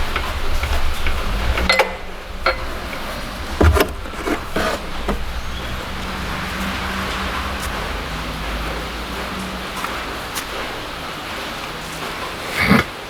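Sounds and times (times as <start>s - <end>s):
steady low hum: 0.0s - 12.6s
metal tools clicking and knocking: 0.1s - 6.0s.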